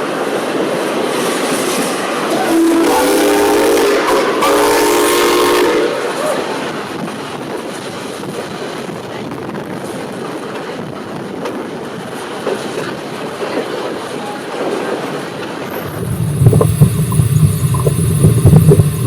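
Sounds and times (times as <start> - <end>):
train rushing on track: 0.0 - 19.0
steam locomotive whistle chord: 2.3 - 6.6.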